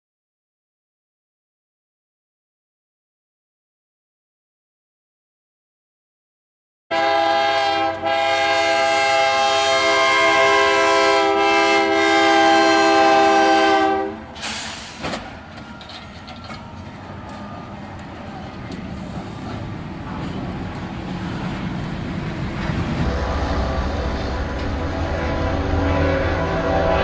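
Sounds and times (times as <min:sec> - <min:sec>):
locomotive air horn blast: 0:06.9 - 0:15.0, 0:23.0 - 0:27.0
passing train rumble: 0:06.9 - 0:27.0.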